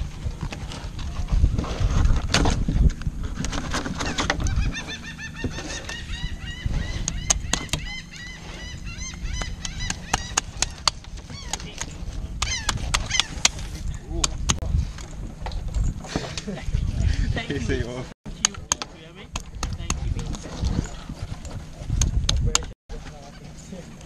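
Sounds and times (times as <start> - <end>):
bird calling rapidly: 3.9 - 11.7, 12.4 - 13.6.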